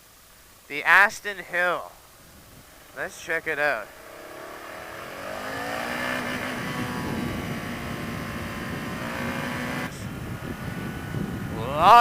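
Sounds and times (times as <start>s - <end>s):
wind rumble on microphone: 2.1s - 3.0s, 4.8s - 12.0s
motorcycle engine accelerating: 2.7s - 11.6s.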